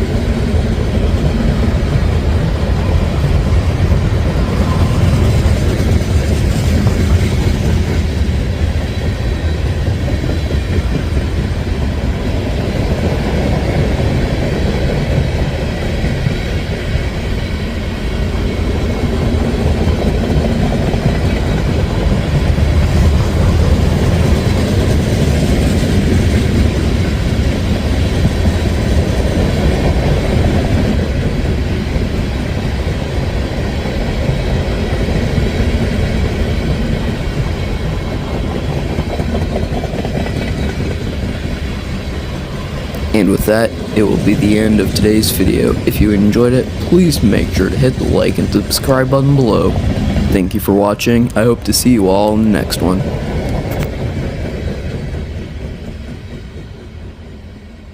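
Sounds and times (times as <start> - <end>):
wheels clacking over rail joints: 0.0 - 45.8
train freight cars rumbling: 0.0 - 57.9.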